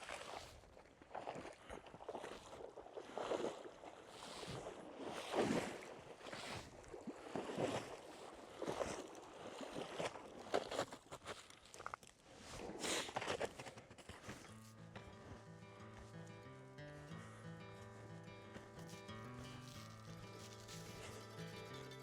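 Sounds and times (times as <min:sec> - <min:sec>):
snowshoes crunching through snow: 0:07.3 - 0:22.0.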